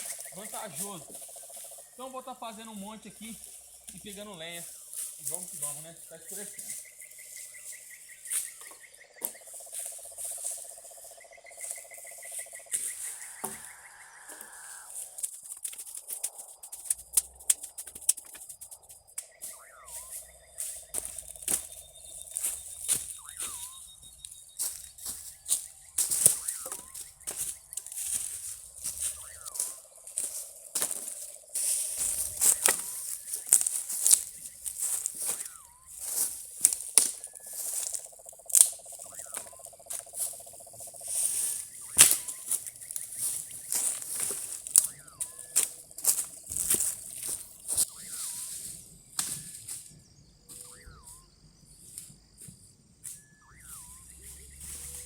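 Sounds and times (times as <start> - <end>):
pulsing animal trill: 0.0 - 51.9, 53.1 - 55.0
bird swooping call: 10.3 - 15.2, 18.1 - 29.9, 31.6 - 38.0, 38.8 - 49.8, 53.1 - 55.0
dry branches cracking: 24.6 - 40.0, 41.9 - 45.0.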